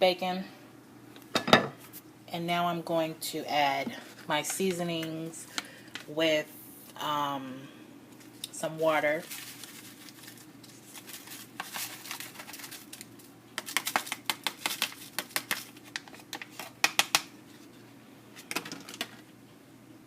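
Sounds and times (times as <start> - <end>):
seasoning packet crinkling: 9.2 - 16.8.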